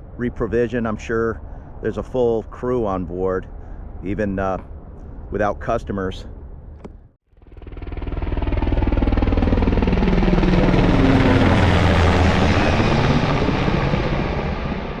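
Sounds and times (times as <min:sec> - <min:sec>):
helicopter rotor blades beating: 0:06.8 - 0:15.0
turbine engine: 0:06.8 - 0:15.0.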